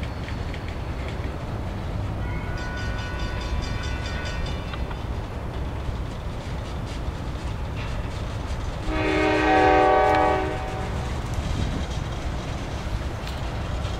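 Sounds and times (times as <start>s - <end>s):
train rumbling: 0.0s - 13.9s
locomotive air horn blast: 8.9s - 11.0s.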